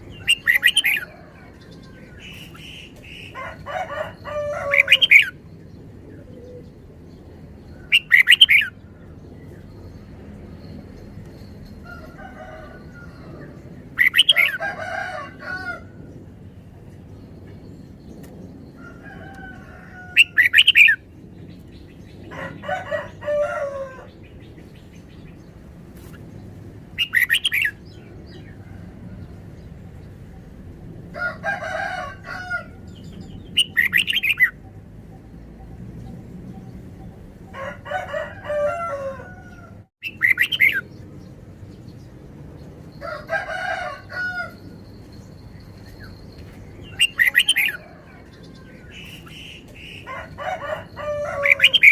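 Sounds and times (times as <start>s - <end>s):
rooster crowing: 0.0s - 2.6s, 3.2s - 5.4s, 11.8s - 16.1s, 18.8s - 21.0s, 22.3s - 24.2s, 31.1s - 34.6s, 37.5s - 40.8s, 43.0s - 44.9s, 46.9s - 49.4s, 50.0s - 51.9s
bulbul singing: 7.8s - 10.7s.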